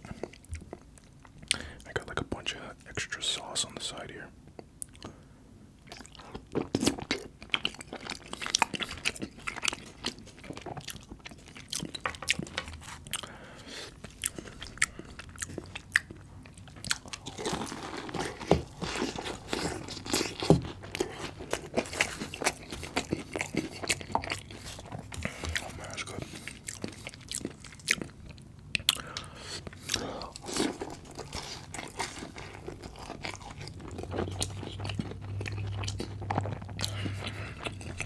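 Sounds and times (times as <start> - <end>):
chewing food: 0.0 - 1.9, 5.8 - 38.0
crunching fried pastry: 5.8 - 38.0.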